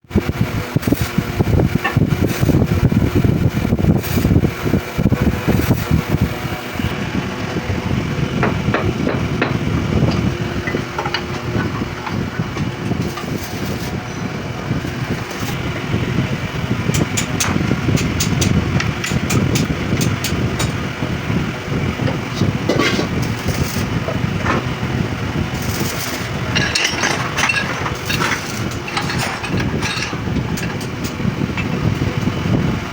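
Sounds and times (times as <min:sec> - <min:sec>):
low machine hum: 0:00.1 - 0:32.9
metal parts and tools clicking: 0:25.6 - 0:31.7.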